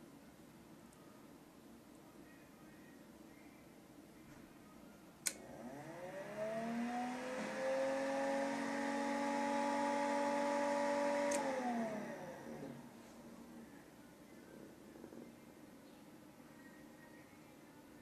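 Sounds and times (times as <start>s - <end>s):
electric fan motor hum: 5.2s - 13.8s.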